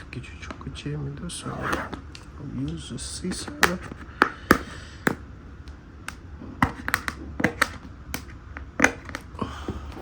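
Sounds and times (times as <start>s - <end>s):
handling noise: 1.4s - 2.3s.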